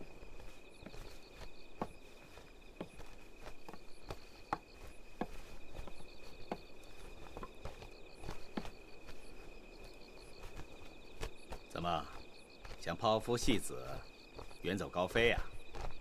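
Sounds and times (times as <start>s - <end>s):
crickets chirping: 0.0s - 16.0s
footsteps: 0.0s - 16.0s.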